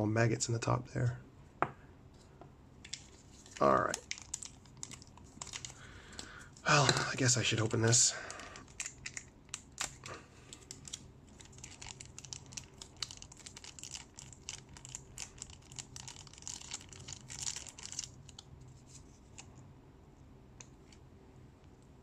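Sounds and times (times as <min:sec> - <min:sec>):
plastic packaging crinkling and tearing: 0:03.0 - 0:05.8, 0:08.6 - 0:18.4.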